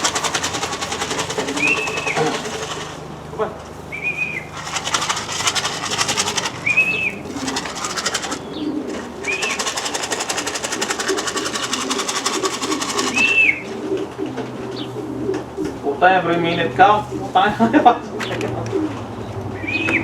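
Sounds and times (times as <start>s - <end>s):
rapid high rattling buzz: 0.0s - 13.6s
pigeons cooing: 0.0s - 20.0s.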